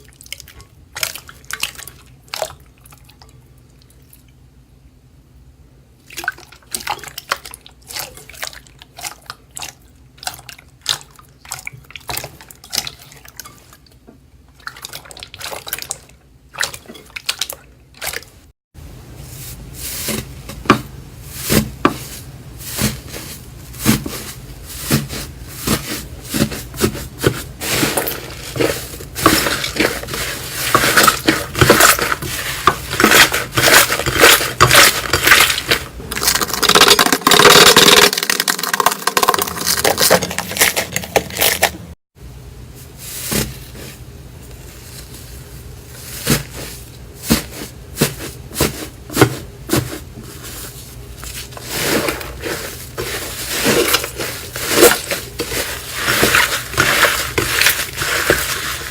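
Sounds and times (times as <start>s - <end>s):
knife scraping soap: 21.4s - 35.9s.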